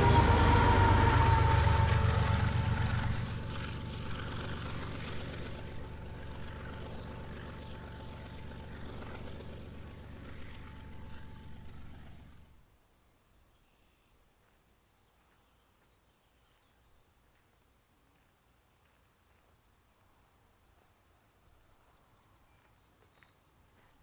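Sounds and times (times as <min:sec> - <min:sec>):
freight train rumbling past: 0:00.0 - 0:12.4.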